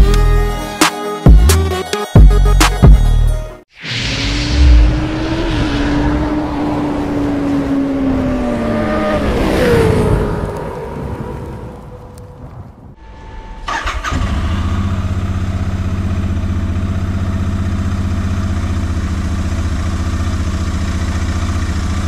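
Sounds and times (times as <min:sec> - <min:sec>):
motorcycle engine starting and idling: 0:13.5 - 0:22.0.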